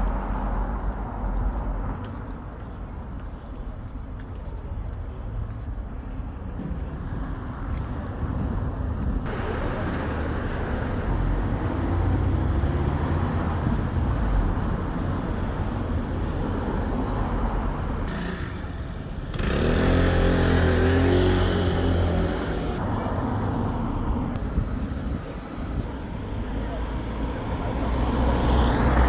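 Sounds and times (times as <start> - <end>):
traffic passing: 0.0 - 29.0
louder engine humming: 17.7 - 22.8.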